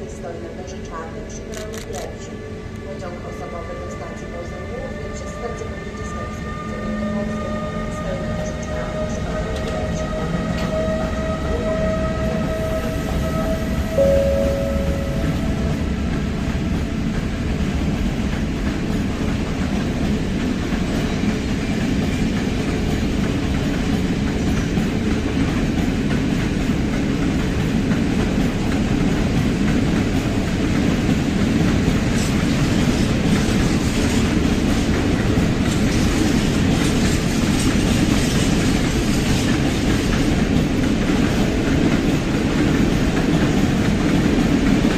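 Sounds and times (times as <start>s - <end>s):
train rumbling past: 0.0s - 44.9s
train horn: 5.5s - 15.9s.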